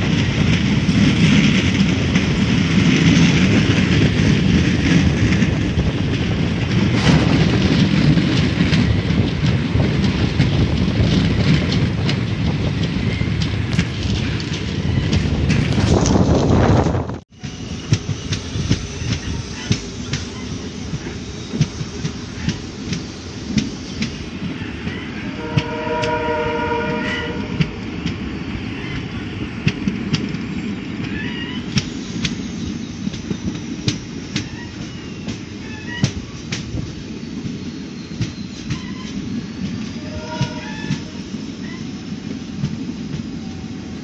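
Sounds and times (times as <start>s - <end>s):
clickety-clack over rail joints: 0.0s - 44.0s
train wheels rumbling on rails: 0.0s - 44.0s
train horn: 25.3s - 27.9s, 39.9s - 41.3s.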